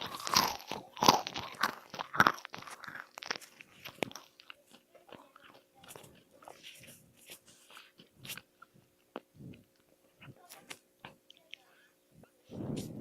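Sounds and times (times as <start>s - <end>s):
crunchy food being crunched: 0.0s - 9.3s.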